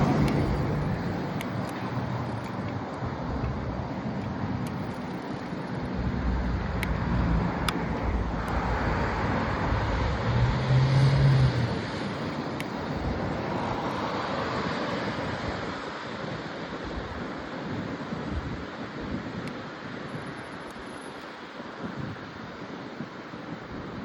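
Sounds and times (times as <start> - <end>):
motor vehicle passing: 0.0 - 4.7, 5.7 - 14.5
road traffic: 0.0 - 24.0
wind rushing over microphone: 0.0 - 24.0.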